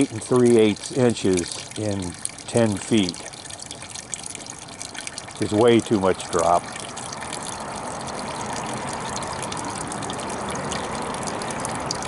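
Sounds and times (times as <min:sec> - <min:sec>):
water pouring into a bucket: 0:00.0 - 0:12.0.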